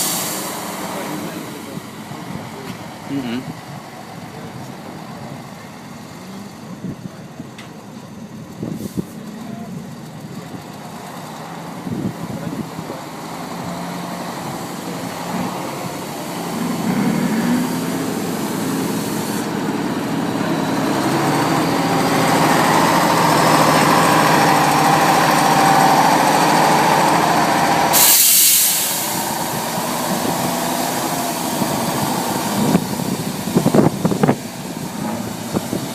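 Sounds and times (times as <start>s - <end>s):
diesel truck engine under load: 0.0s - 35.9s
short sharp hiss: 27.9s - 29.3s.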